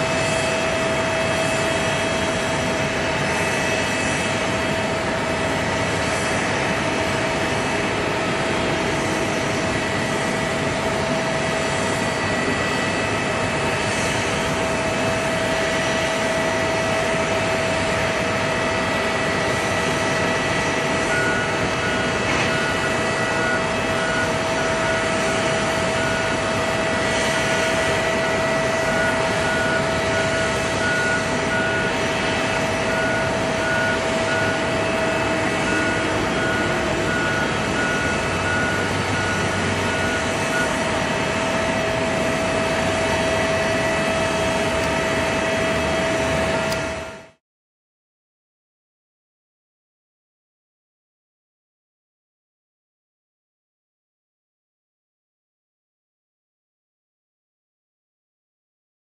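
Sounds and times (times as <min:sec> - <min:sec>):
jet airliner engines running: 0:00.0 - 0:47.4.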